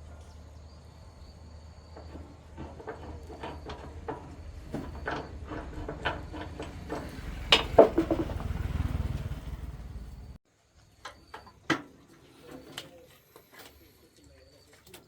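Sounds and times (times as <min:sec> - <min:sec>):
clicks and knocks: 0:02.0 - 0:08.8.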